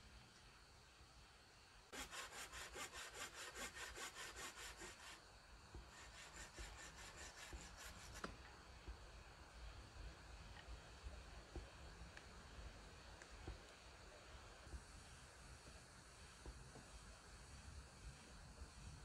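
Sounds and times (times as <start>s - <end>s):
hand saw cutting wood: 1.9s - 8.4s.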